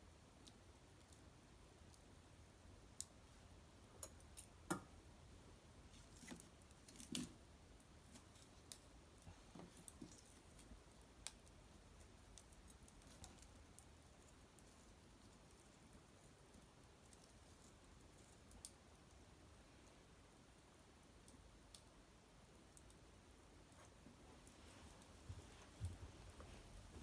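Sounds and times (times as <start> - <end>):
low hiss: 0.0 - 27.0.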